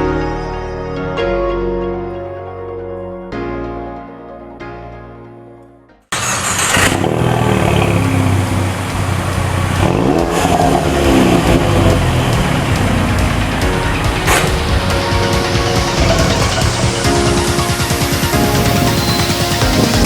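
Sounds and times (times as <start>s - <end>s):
soft music: 0.0s - 6.1s, 8.2s - 20.0s
car engine revving loudly: 6.2s - 17.8s.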